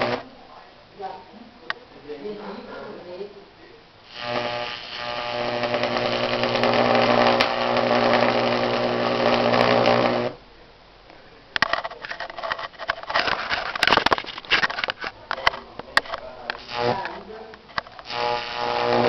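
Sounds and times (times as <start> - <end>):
electrical crackles and snaps: 0.0 - 0.2, 4.0 - 10.4, 11.6 - 19.0
electrical arc buzzing: 0.0 - 0.3, 4.0 - 10.5, 11.6 - 19.0.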